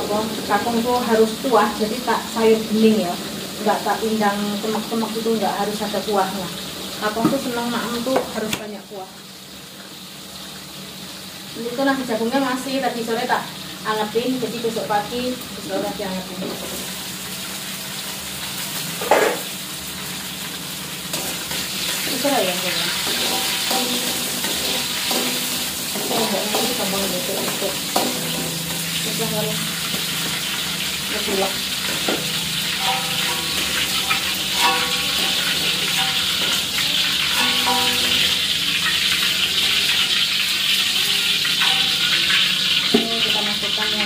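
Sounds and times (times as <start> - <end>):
food sizzling in oil: 0.0 - 44.0
metal lid clank: 19.0 - 19.5, 23.0 - 29.0, 31.8 - 38.5
spatula scraping pan: 21.1 - 40.2.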